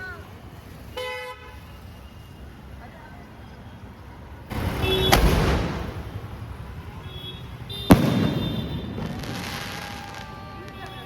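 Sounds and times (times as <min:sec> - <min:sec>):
firework shell bangs: 0:07.9 - 0:09.9.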